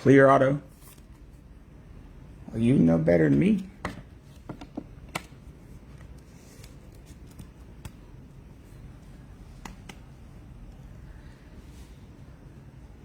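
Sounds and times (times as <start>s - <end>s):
steady low hum: 0.0s - 13.0s
trading cards clicking and rustling: 3.6s - 8.2s, 9.4s - 10.2s.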